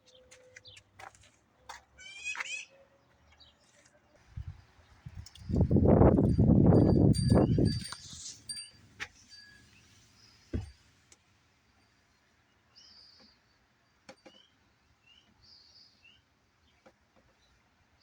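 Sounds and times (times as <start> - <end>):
light knocks: 10.5 - 10.8.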